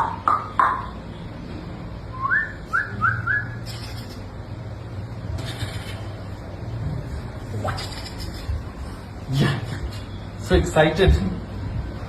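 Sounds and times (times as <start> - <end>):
whistle-like chirps: 2.1 - 3.8.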